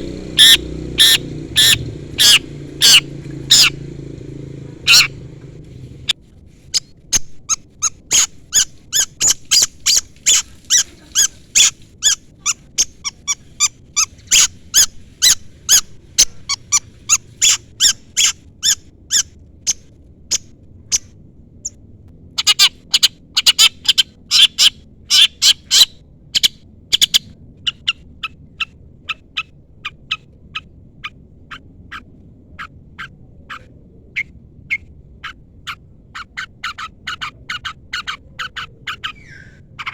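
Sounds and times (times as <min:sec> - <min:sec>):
bird giving sharp high chirps: 0:00.0 - 0:04.0, 0:04.8 - 0:05.3, 0:06.7 - 0:21.0.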